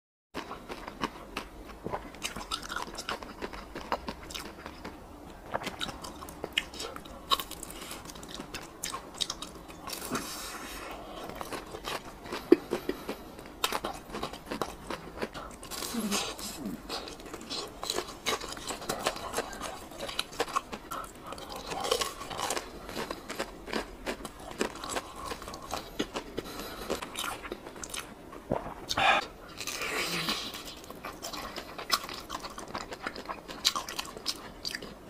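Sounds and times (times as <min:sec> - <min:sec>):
crunching of crispy food: 0:00.4 - 0:28.8, 0:29.5 - 0:35.0
wet mouth sounds: 0:27.3 - 0:30.6.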